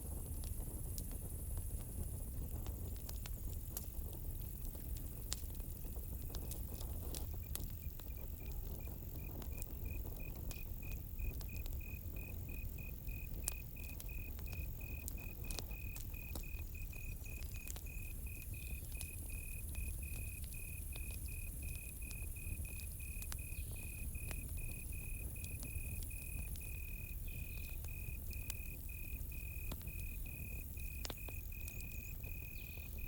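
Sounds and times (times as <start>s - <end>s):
campfire crackling: 0.0s - 33.0s
cricket chirping: 7.2s - 33.0s.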